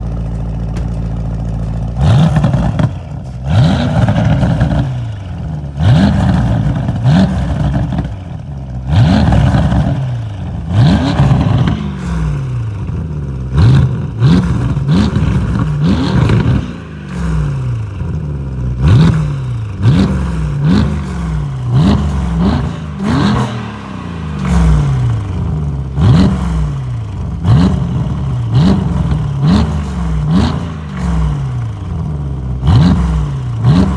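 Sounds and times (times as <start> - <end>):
exhaust pops: 0.0 - 5.5
car engine revving: 0.1 - 33.9.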